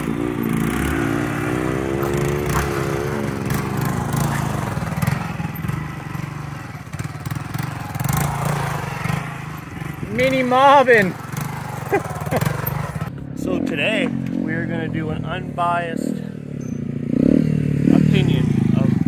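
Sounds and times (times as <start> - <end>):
small motorcycle engine running: 0.0 - 13.1.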